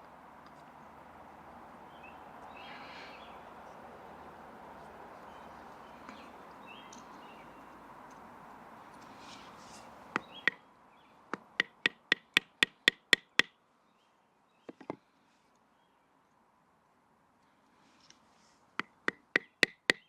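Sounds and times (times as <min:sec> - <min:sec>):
wooden baton knocking on knife blade: 0:11.6 - 0:13.5, 0:19.1 - 0:20.0.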